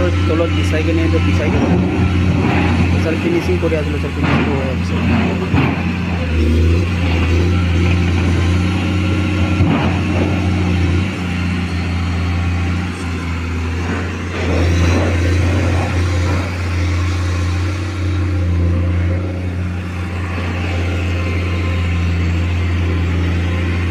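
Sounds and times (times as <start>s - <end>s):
excavator diesel engine running: 0.0s - 23.9s
machine scraping: 0.0s - 23.9s.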